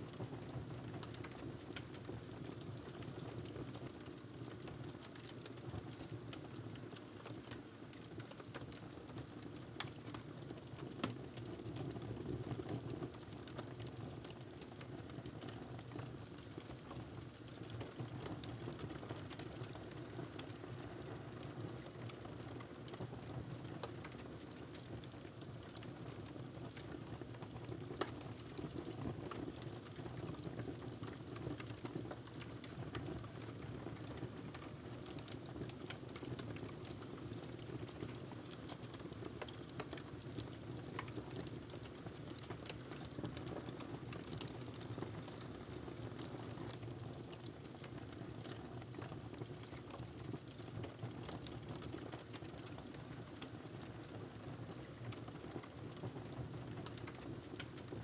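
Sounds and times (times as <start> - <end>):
wood fire crackling: 23.7 - 25.8, 29.5 - 50.4, 51.2 - 53.9, 54.9 - 58.0.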